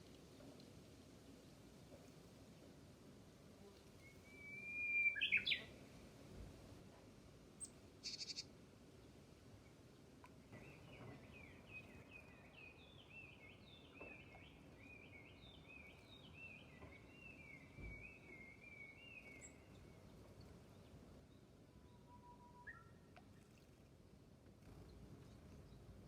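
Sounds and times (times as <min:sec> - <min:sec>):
songbird singing: 0:03.6 - 0:06.0, 0:07.6 - 0:23.5.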